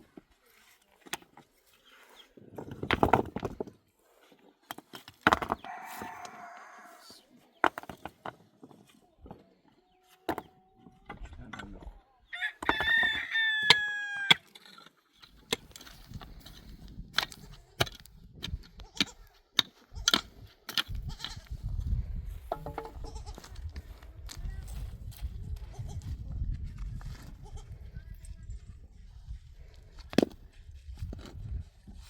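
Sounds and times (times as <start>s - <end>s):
rooster crowing: 5.6s - 7.2s, 12.3s - 14.4s.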